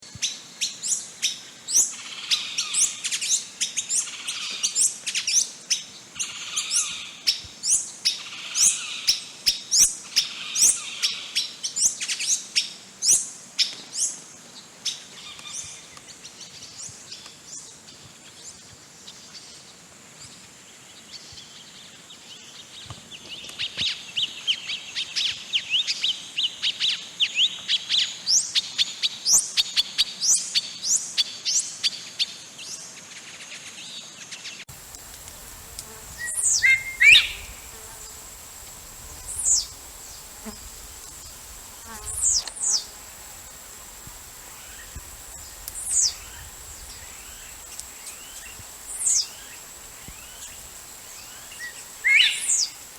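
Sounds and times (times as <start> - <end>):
birds chirping downward sweeps: 35.0 - 38.2.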